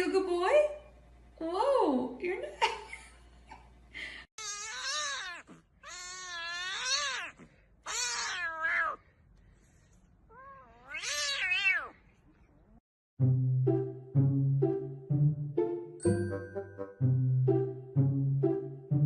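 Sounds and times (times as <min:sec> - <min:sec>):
cat yowling: 0:04.4 - 0:09.0, 0:10.3 - 0:12.0.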